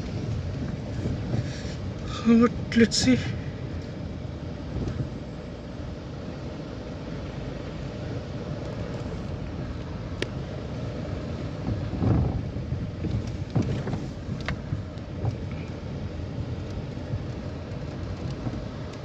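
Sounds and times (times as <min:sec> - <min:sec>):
vehicle engine and road noise: 0:00.0 - 0:19.0
vehicle thumps and knocks: 0:11.6 - 0:15.5.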